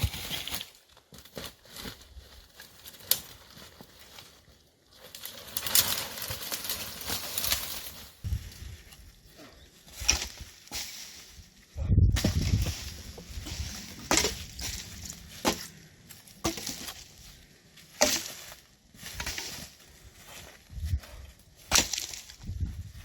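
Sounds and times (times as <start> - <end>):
twigs snapping: 2.6 - 4.0, 5.0 - 8.0, 21.7 - 22.5
heavy thud: 12.0 - 13.0.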